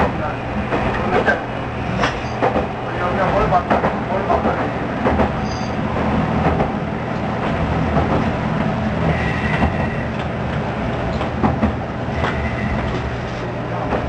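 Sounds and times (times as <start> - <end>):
faint squeal: 5.4 - 5.8, 9.1 - 10.1.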